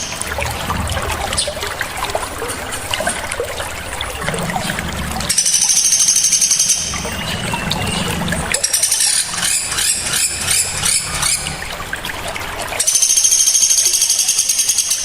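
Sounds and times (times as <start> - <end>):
low hum: 0.0 - 9.8
high-pitched bird chirps: 12.8 - 15.0.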